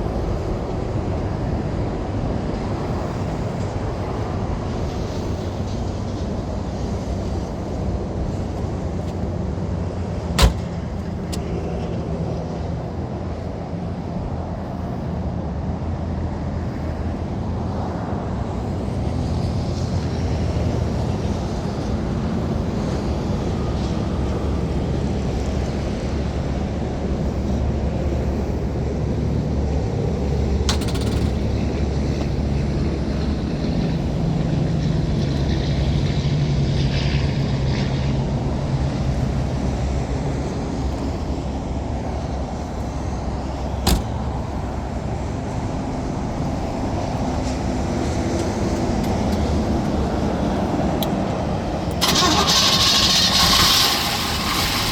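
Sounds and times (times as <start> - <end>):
car engine running: 10.1 - 11.7, 30.2 - 32.5, 43.5 - 44.9
sharp click: 10.4 - 11.5, 30.7 - 31.5.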